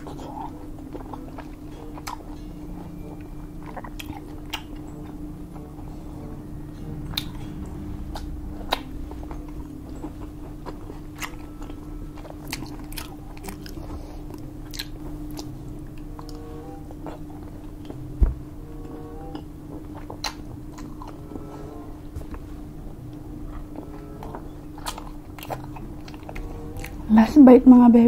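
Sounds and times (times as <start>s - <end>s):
chewing with wet clicks and smacks: 0.0s - 5.2s, 8.1s - 18.1s, 19.3s - 22.4s, 23.1s - 27.1s
low hum: 0.0s - 28.0s.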